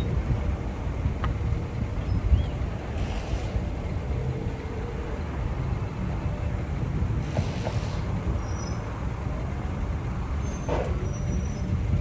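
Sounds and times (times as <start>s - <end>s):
bus engine rumble: 0.0s - 12.0s
air hiss: 7.3s - 8.1s.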